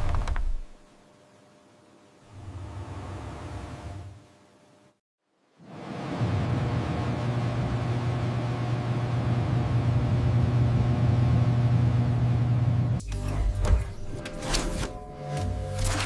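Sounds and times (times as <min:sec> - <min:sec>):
low machine hum: 0:05.8 - 0:16.0.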